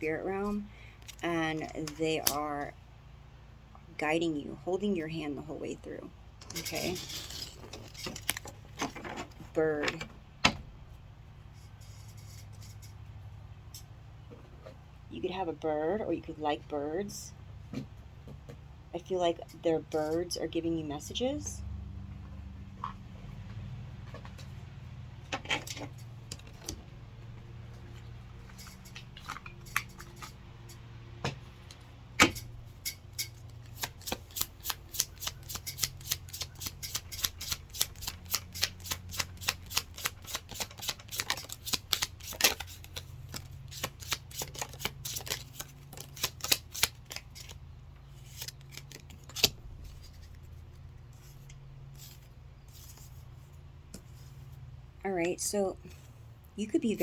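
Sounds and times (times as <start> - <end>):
cards being shuffled: 33.3 - 53.3.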